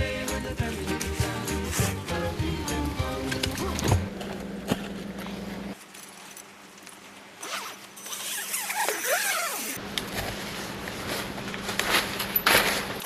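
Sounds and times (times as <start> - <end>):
zipper being pulled: 7.4 - 9.8.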